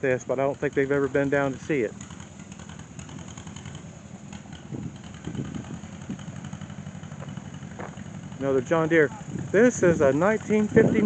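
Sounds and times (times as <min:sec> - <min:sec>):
engine puttering at low speed: 0:00.0 - 0:11.0.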